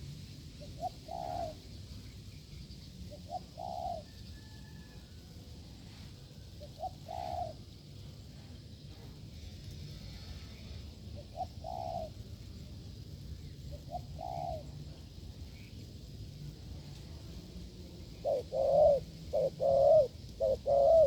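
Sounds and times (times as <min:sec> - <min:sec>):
dove cooing: 0:00.6 - 0:01.7, 0:03.1 - 0:04.5, 0:06.3 - 0:08.2, 0:11.0 - 0:12.3, 0:13.6 - 0:15.2, 0:17.8 - 0:21.0.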